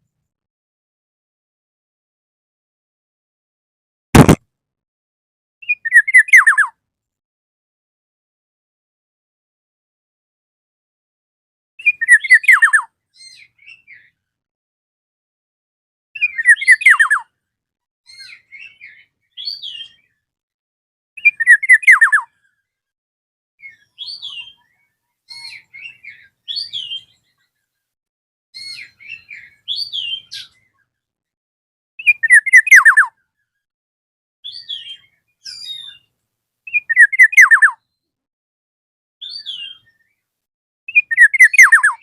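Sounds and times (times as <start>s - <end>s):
soft bird whistles and chirps: 5.6s - 6.8s, 11.8s - 14.2s, 16.2s - 17.3s, 18.1s - 20.2s, 21.2s - 22.5s, 23.6s - 27.8s, 28.6s - 31.0s, 32.0s - 33.6s, 34.4s - 36.1s, 36.7s - 38.1s, 39.2s - 40.3s, 40.9s - 42.0s.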